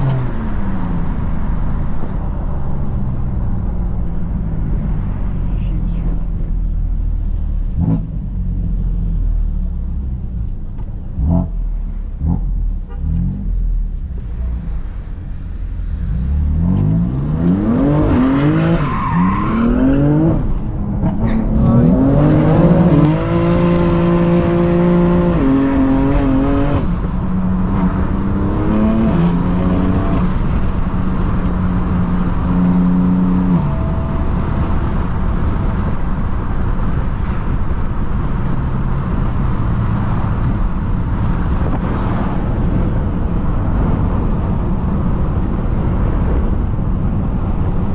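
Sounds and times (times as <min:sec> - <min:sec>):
car engine revving: 0:00.0 - 0:46.6
road and tyre noise: 0:00.0 - 0:47.9.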